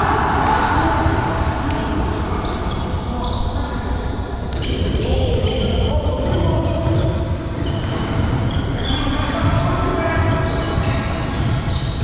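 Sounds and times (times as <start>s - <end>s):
low hall rumble: 0.0s - 12.0s
shoes squeaking on court floor: 6.3s - 12.0s.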